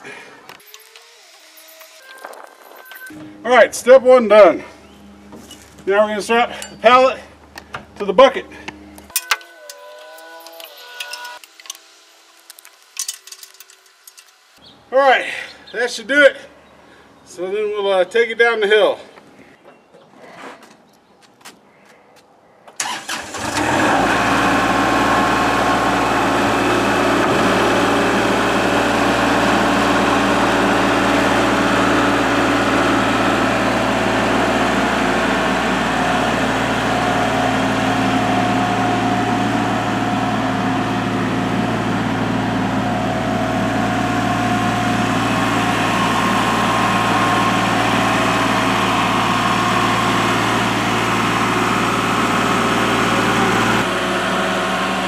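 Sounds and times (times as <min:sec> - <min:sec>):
tractor diesel engine running: 0:22.8 - 0:55.0.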